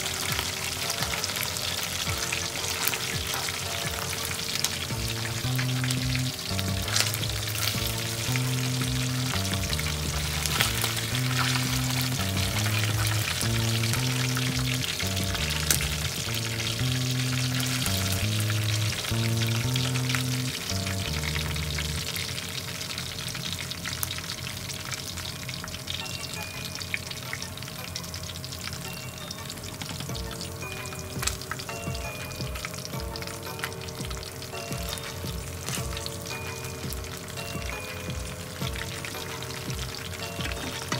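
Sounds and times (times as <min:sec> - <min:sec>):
metal tongs turning food: 0:00.0 - 0:22.0, 0:34.9 - 0:36.8, 0:38.8 - 0:40.9
background music with bass: 0:00.0 - 0:22.2, 0:27.6 - 0:40.9
chicken sizzling in hot oil: 0:00.0 - 0:40.9.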